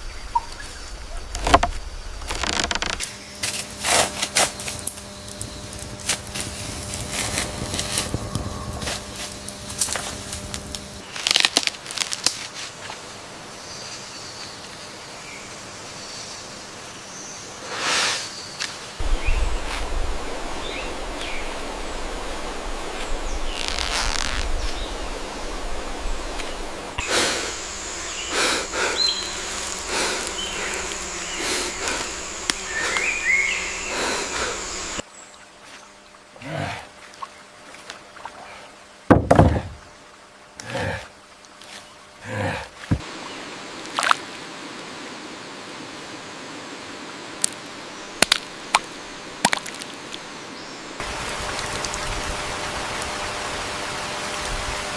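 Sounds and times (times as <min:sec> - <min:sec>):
sharp crackles and clicks: 0:01.2 - 0:12.4, 0:23.0 - 0:24.8
high-pitched insect drone: 0:01.8 - 0:11.0, 0:27.0 - 0:35.0
steady low hum: 0:03.0 - 0:11.1, 0:24.6 - 0:35.0
bird chirps: 0:27.0 - 0:31.5.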